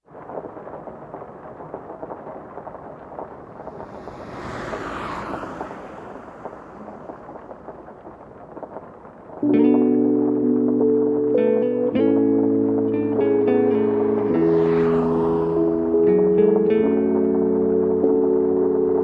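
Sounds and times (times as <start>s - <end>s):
crackling hissing noise: 0.0s - 19.0s
broad whoosh: 3.6s - 7.4s.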